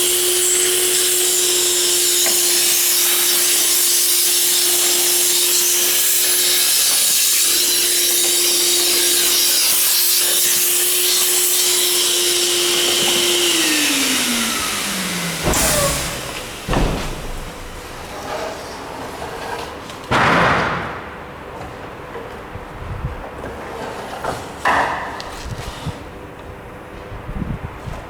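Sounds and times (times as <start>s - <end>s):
spindle motor whining: 0.0s - 18.4s
loud clunks: 13.0s - 18.4s, 20.1s - 21.8s.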